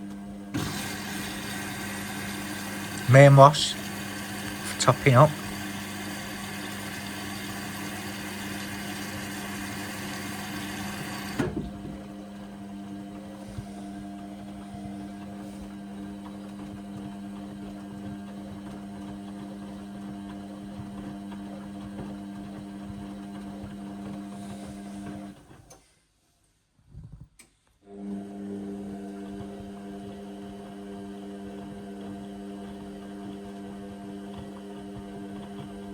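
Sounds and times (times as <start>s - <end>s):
washing machine hum: 0.0s - 25.7s, 27.9s - 35.9s
water flowing into washing machine: 0.5s - 17.8s.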